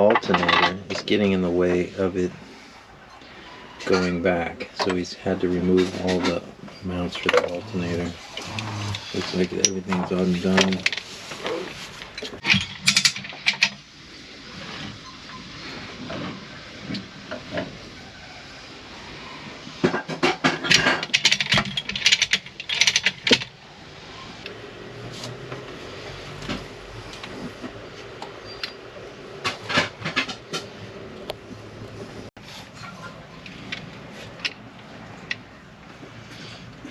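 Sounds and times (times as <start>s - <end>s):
metal tools clinking: 4.8s - 13.8s, 20.7s - 23.5s.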